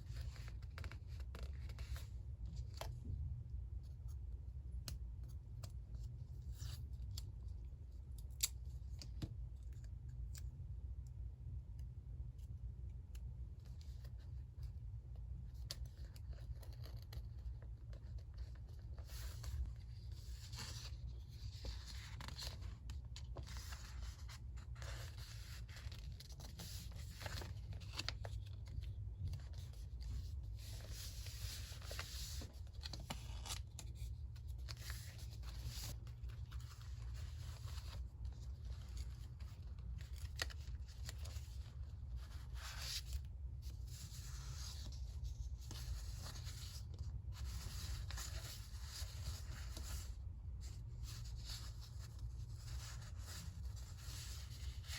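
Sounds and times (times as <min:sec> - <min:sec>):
paper rustling and scratching: 0:15.5 - 0:54.9.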